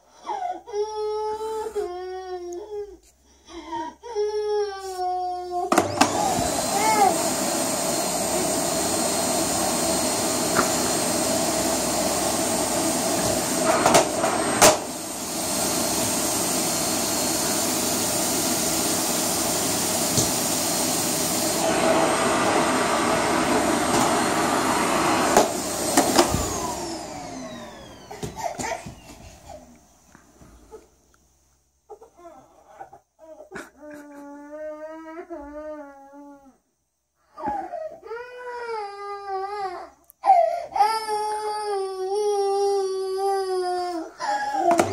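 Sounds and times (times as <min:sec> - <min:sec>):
vacuum cleaner whining: 0:05.5 - 0:30.8, 0:40.2 - 0:44.9
vacuum cleaner knocks: 0:10.4 - 0:11.1, 0:12.9 - 0:14.9, 0:20.1 - 0:20.5, 0:25.3 - 0:26.6.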